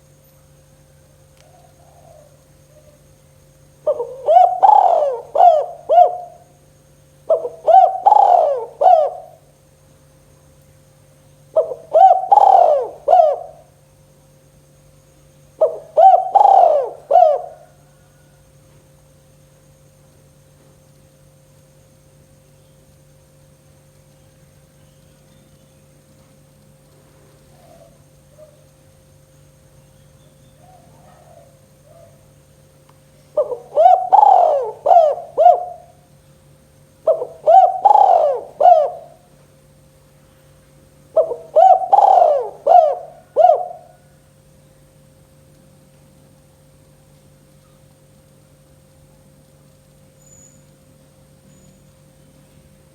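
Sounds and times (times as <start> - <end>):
dove cooing: 1.4 - 3.1, 3.8 - 6.5, 7.2 - 9.5, 11.5 - 13.8, 15.6 - 18.4, 27.4 - 28.7, 30.5 - 32.3, 33.3 - 36.1, 37.0 - 39.4, 41.1 - 44.2.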